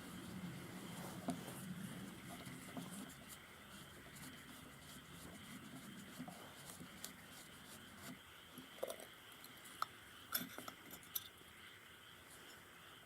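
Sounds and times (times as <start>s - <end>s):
metal parts and tools clinking: 10.3s - 11.4s.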